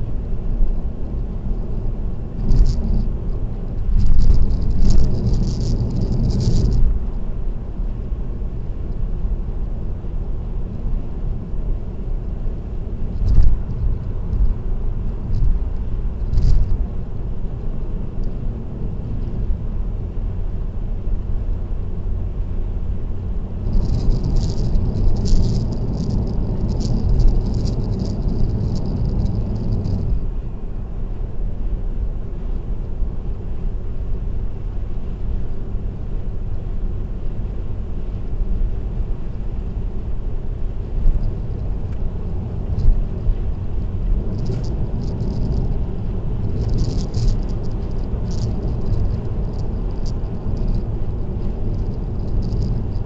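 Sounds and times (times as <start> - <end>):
road and engine rumble: 0.0 - 53.0
high-pitched rattle: 3.7 - 7.0, 16.2 - 16.8, 23.6 - 30.3, 41.0 - 53.0.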